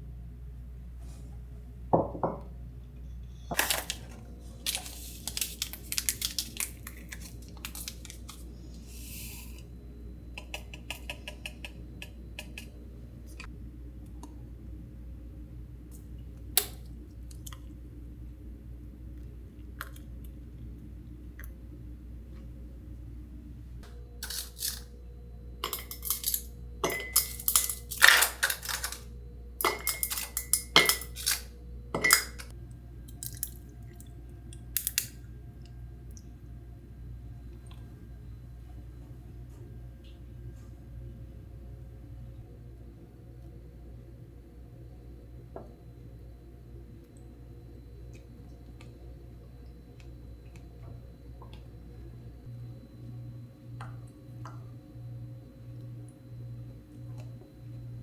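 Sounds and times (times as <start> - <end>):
low hum: 0.0 - 58.0
dishes and utensils clinking: 25.6 - 29.0, 29.6 - 32.5.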